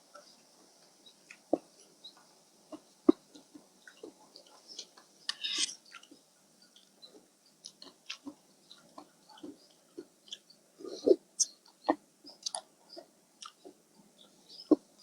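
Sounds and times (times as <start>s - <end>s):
person chewing: 7.6s - 10.4s, 12.4s - 12.7s
wet mouth clicks: 11.4s - 12.7s.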